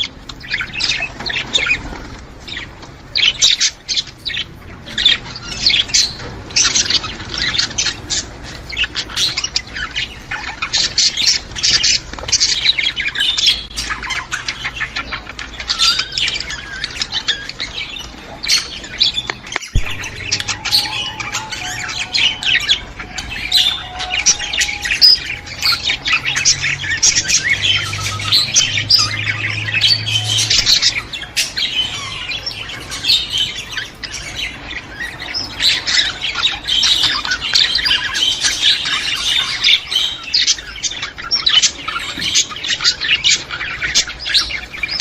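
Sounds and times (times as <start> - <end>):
budgerigars chattering: 0.0 - 45.0.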